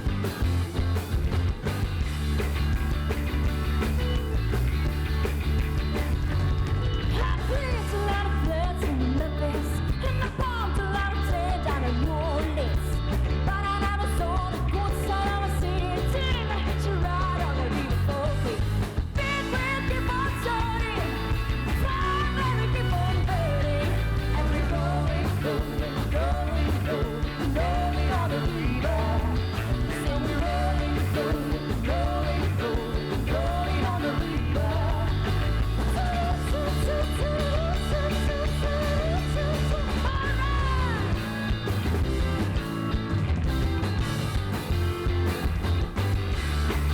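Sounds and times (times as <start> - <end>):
bass: 0.0 - 46.9
drums: 0.0 - 46.9
electric guitar: 0.0 - 46.9
person singing: 7.0 - 41.4.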